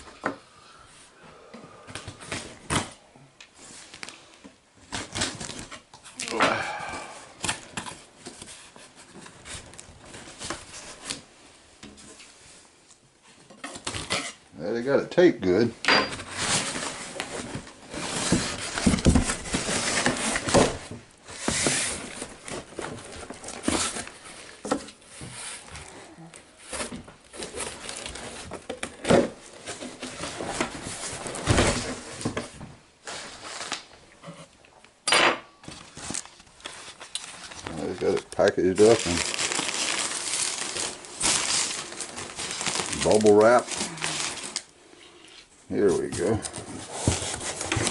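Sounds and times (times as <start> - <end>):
cardboard box rustling and scraping: 16.2 - 25.9, 45.9 - 47.9
cardboard box scraping and rustling: 46.1 - 47.9.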